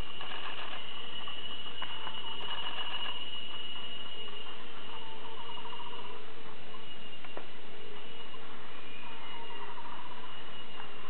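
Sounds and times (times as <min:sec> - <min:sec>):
high-pitched drone: 0:00.0 - 0:11.0.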